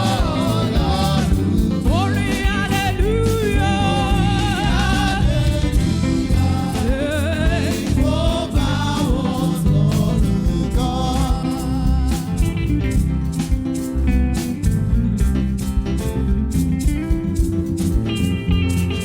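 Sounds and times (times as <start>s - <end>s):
gospel worship singing: 0.0s - 14.1s
full band with steady beat: 0.0s - 19.0s.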